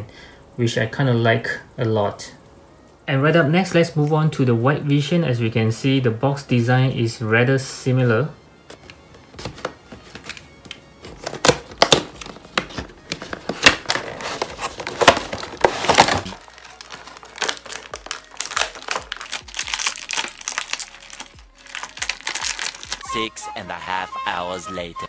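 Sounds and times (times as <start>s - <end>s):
plastic packaging crinkling: 9.5s - 23.0s.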